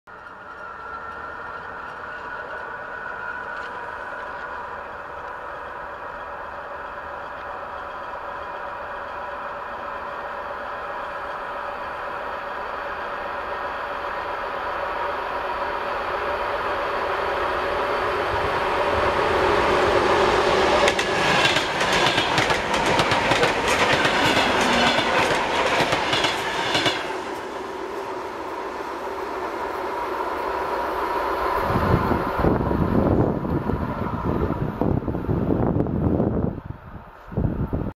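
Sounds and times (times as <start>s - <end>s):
electric train whine: 0.1s - 37.9s
train rolling rumble: 0.1s - 37.9s
train wheels clattering: 19.7s - 29.2s.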